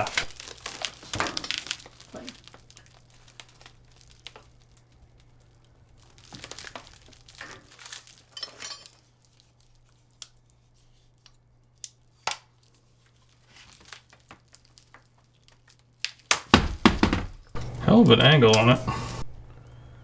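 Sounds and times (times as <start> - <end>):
rustling and crinkling handling: 0.0 - 20.0
steady low hum: 17.5 - 20.0.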